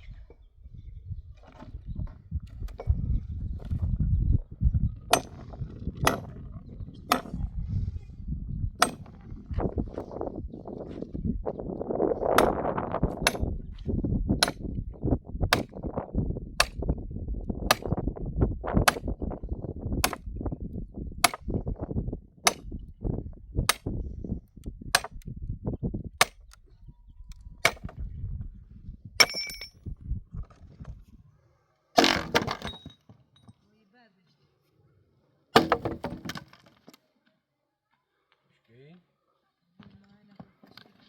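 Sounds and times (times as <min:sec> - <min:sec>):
sharp striking knocks: 0:07.1 - 0:07.4.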